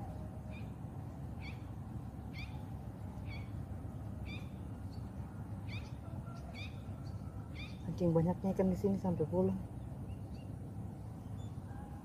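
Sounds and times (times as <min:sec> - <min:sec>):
bird calling: 0:00.0 - 0:08.0.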